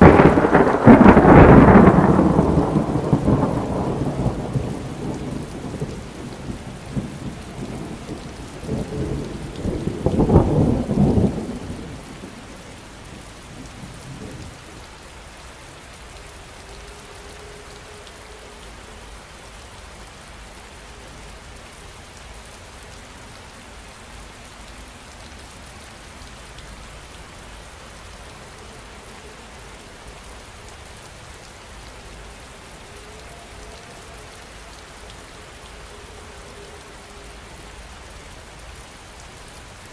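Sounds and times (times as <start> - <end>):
rolling thunder: 0.0 - 14.6
steady rain: 0.0 - 39.9.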